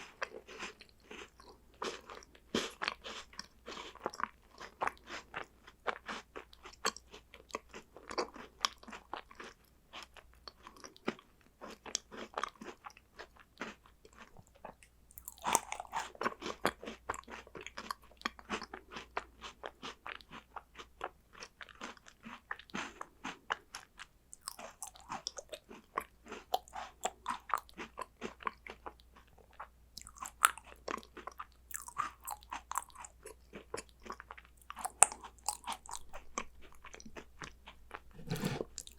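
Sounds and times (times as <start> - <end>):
crunching and chewing snacks: 0.0 - 38.9.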